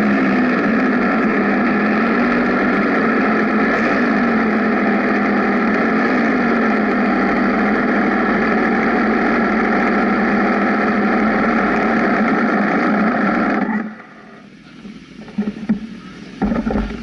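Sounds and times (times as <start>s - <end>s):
motorcycle engine running: 0.0s - 17.0s
knocks and clicks: 14.8s - 17.0s.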